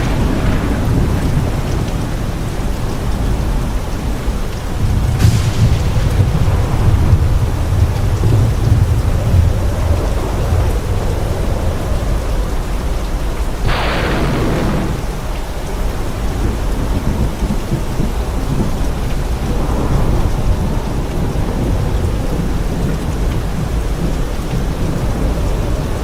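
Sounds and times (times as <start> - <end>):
sharp thunder crack: 0.0 - 3.6, 4.8 - 11.2, 13.6 - 18.8
heavy rain: 0.0 - 26.0
low rolling thunder: 0.0 - 26.0.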